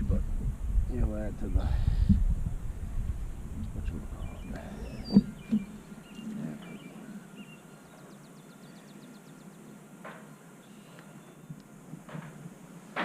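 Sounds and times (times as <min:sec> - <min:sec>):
small birds chirping: 0:00.8 - 0:11.7
high bird trill: 0:04.1 - 0:11.5.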